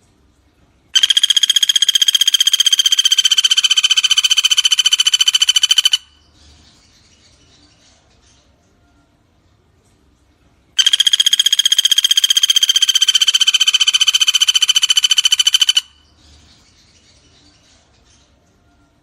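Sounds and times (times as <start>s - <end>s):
woodpecker rattling trill: 1.0s - 6.2s, 10.8s - 16.1s.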